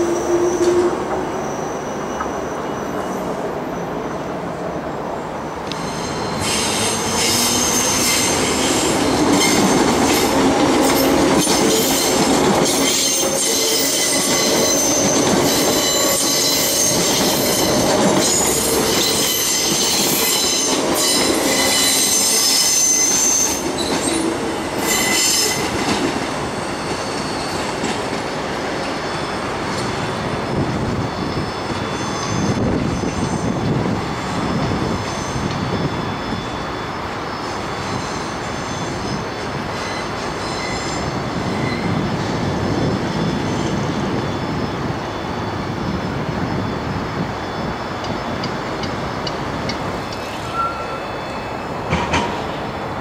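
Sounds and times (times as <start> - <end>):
high-pitched wheel squeal: 0.0 - 4.2, 5.7 - 10.3, 10.9 - 24.2, 24.8 - 25.8, 26.6 - 27.8, 28.9 - 42.4, 50.0 - 52.0
train rumbling over tracks: 0.0 - 53.0.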